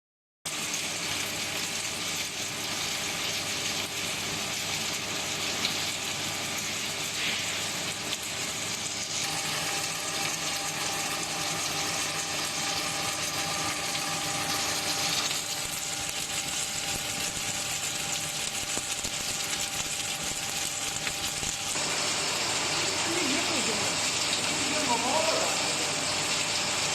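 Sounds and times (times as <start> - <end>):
faint machine hums: 0.5 - 26.9
machinery hissing: 21.7 - 26.9.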